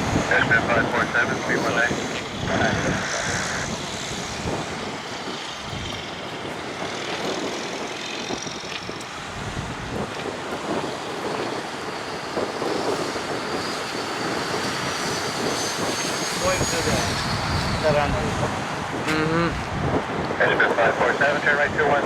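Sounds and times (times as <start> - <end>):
faint high whine: 0.0 - 6.4, 12.8 - 18.5
jet engines rumbling: 0.0 - 22.0.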